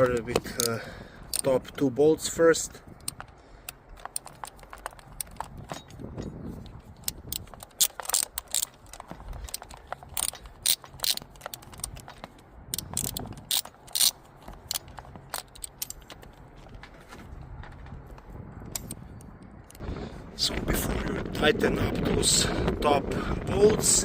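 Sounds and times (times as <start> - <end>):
ratchet wrench clicking: 7.0 - 12.1, 12.7 - 16.2.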